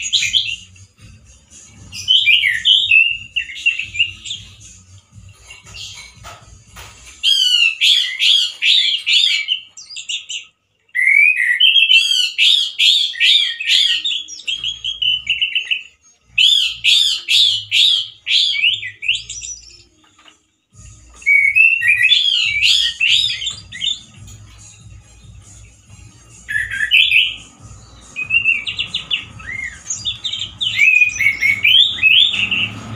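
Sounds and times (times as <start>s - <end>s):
thrush singing: 0.0s - 9.7s, 20.9s - 32.9s.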